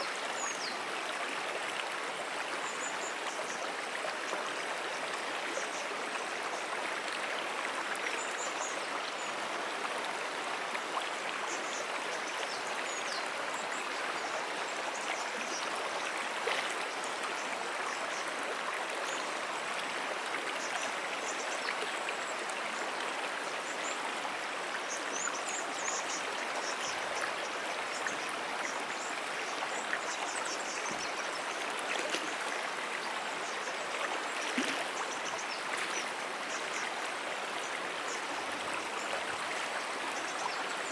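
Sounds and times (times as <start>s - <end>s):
brook flowing: 0.0s - 40.9s.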